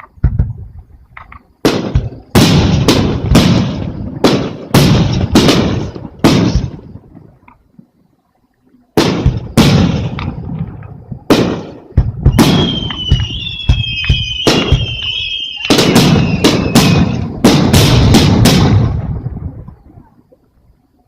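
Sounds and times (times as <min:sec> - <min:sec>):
volley of firework bangs: 0:01.6 - 0:07.0, 0:09.0 - 0:19.6
firework shells booming: 0:01.6 - 0:07.1, 0:09.0 - 0:19.6
firework whistling: 0:11.3 - 0:19.0.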